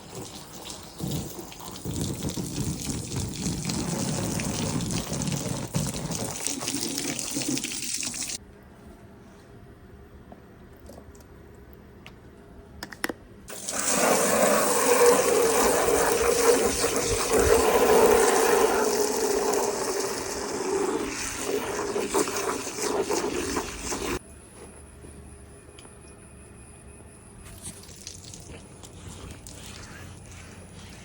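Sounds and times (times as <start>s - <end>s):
water jet spraying hard: 13.5s - 24.2s.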